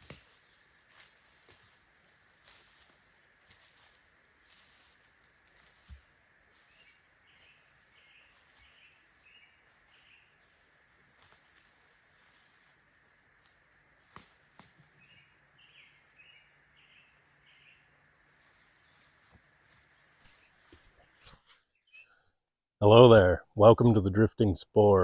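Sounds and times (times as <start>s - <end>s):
faint bird song: 0.2s - 22.4s.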